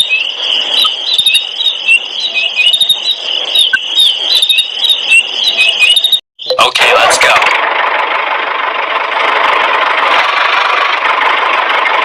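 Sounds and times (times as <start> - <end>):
small birds chirping: 0.0 - 6.7.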